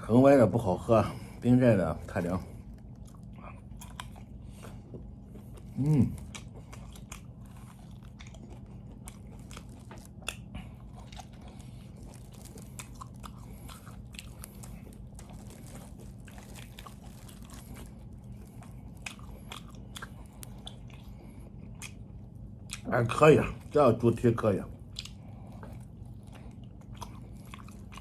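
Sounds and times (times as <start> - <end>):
low hum: 0.0 - 28.0
person chewing wet smacks: 2.1 - 23.8, 24.7 - 28.0.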